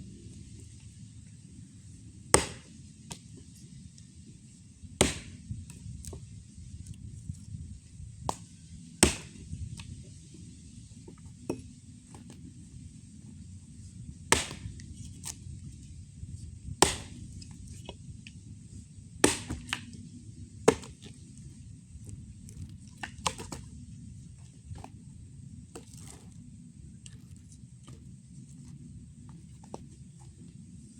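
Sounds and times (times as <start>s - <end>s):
axe chopping wood: 2.3s - 3.3s, 5.0s - 7.5s, 8.2s - 9.9s, 11.1s - 12.5s, 14.3s - 15.4s, 16.7s - 17.9s, 19.2s - 20.0s, 20.6s - 25.0s, 25.7s - 26.4s, 27.1s - 30.4s.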